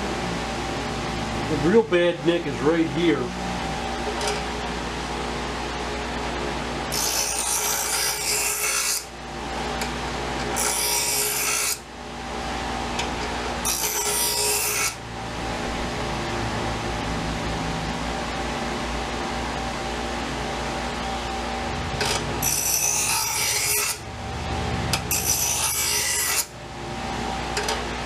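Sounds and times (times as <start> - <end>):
machine hum: 0.0 - 28.0
knife blade grinding on abrasive: 6.9 - 9.1, 10.4 - 11.8, 13.2 - 15.0, 22.0 - 24.1, 24.9 - 26.5.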